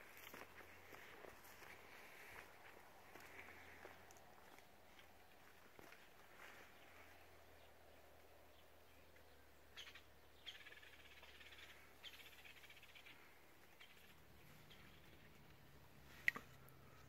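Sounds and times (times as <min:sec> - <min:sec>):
faint high bird chirps: 0:08.5 - 0:17.0.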